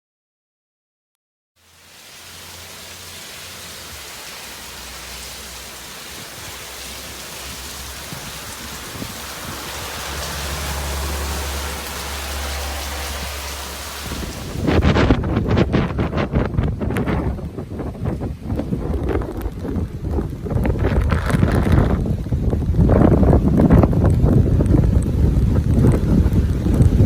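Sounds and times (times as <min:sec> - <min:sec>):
steady rain hiss: 0:01.6 - 0:14.9.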